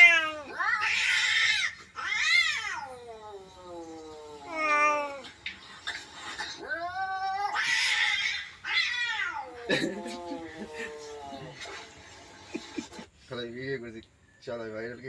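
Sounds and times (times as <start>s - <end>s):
cat meowing: 0.0s - 5.3s, 6.6s - 11.5s.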